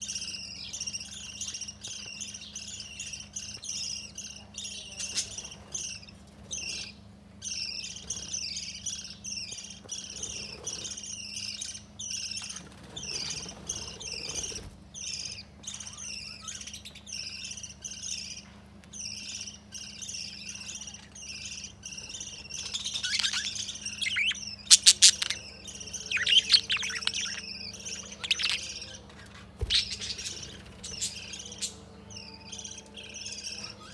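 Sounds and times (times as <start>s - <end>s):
faint steady hum: 0.0s - 33.9s
small parrots chirping: 0.0s - 33.9s
sharp squawks: 20.5s - 31.7s.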